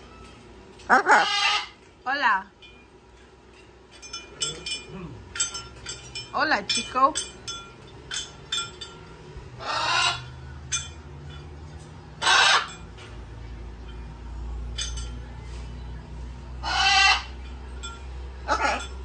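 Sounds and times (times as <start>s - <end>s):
parrot squawking: 0.9s - 1.8s, 9.6s - 10.4s, 12.2s - 12.8s, 16.6s - 17.4s, 18.4s - 19.0s.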